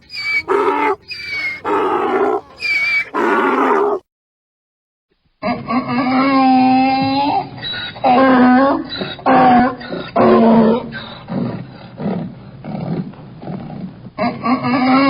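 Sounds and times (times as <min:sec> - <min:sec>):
donkey braying: 0:00.0 - 0:04.0.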